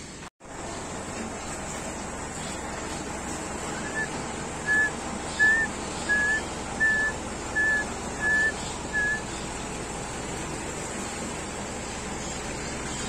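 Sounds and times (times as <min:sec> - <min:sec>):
bird whistling notes: 0:03.6 - 0:09.5.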